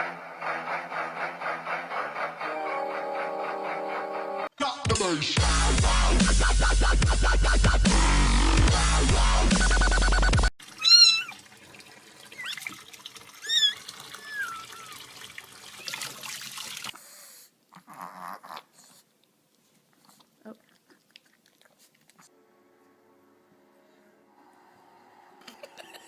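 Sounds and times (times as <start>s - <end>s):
cat meowing: 10.8s - 11.4s, 13.4s - 15.0s.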